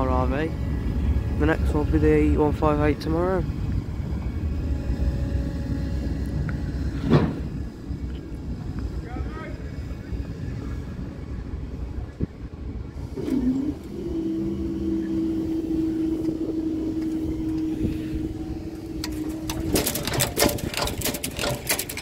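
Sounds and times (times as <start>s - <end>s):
barrier motor whine: 0.0s - 22.0s
clicks and knocks: 19.0s - 22.0s.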